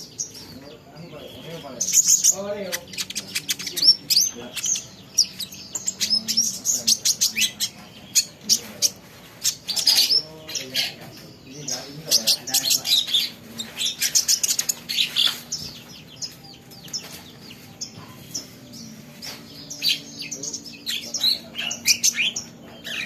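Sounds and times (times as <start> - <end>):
sunbird chirping: 0.0 - 23.0.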